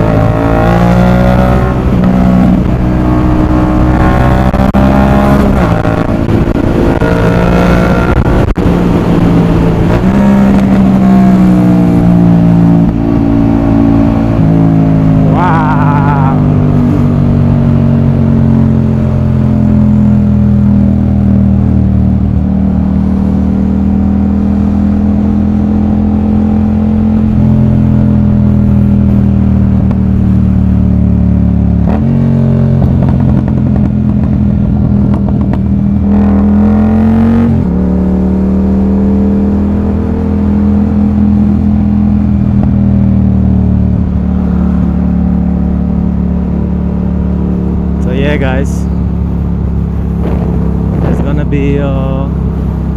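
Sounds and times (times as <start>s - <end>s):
motorcycle engine running: 1.2s - 36.7s, 37.7s - 52.9s.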